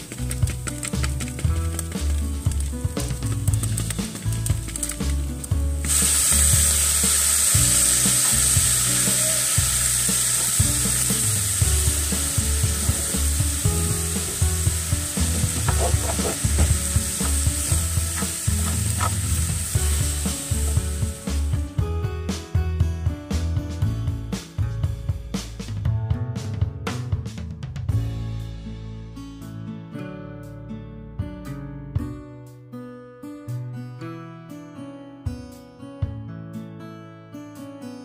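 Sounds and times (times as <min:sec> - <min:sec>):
background music: 0:00.0 - 0:38.0
meat sizzling in a skillet: 0:05.8 - 0:21.6
spatula scraping a pan: 0:15.5 - 0:16.8, 0:18.1 - 0:19.4.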